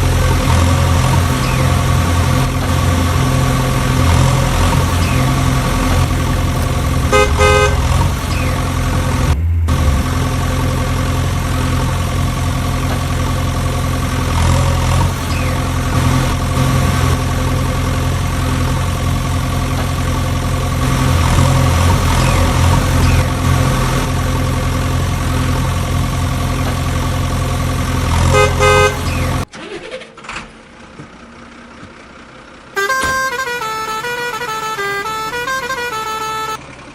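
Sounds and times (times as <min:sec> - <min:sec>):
truck engine running: 0:00.0 - 0:36.9
horn toots: 0:03.9 - 0:10.1, 0:28.2 - 0:29.5, 0:32.8 - 0:36.6.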